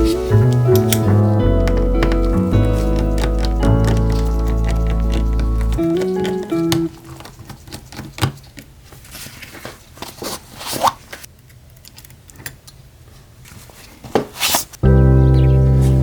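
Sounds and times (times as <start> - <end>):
hand tools clicking and scraping: 0.0 - 8.7.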